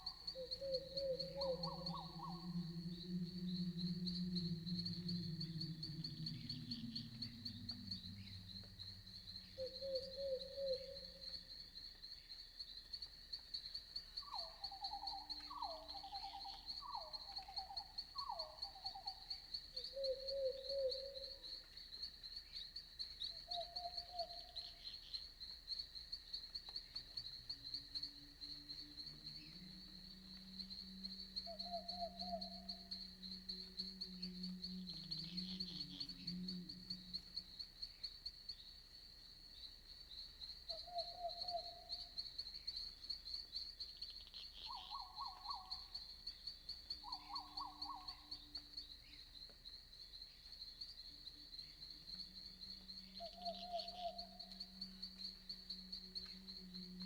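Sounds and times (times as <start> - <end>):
short pulsed animal calls: 0.0 - 11.2
crickets trilling: 0.0 - 57.0
low wavering drone: 0.4 - 11.1, 28.7 - 37.5.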